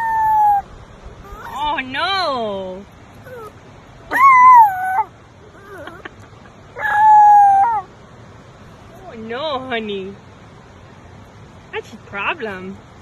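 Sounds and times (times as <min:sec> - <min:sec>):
dog crying out: 0:00.0 - 0:01.7, 0:03.2 - 0:06.1, 0:06.8 - 0:07.9.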